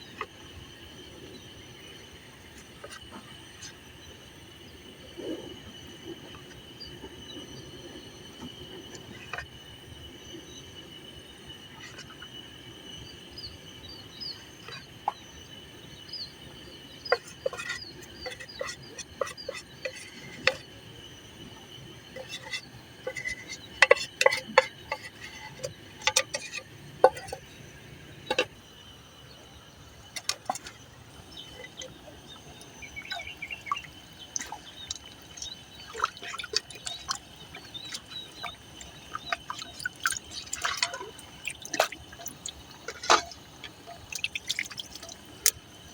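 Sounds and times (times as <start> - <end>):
insect trill: 6.0 - 45.9
water dripping and splashing: 31.4 - 45.7.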